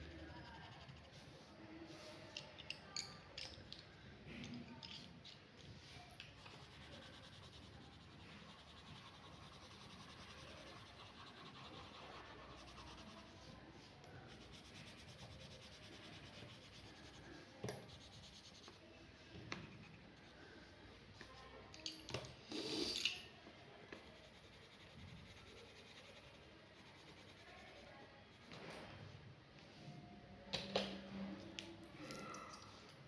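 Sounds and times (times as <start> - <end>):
pen scratching on paper: 6.4 - 18.8.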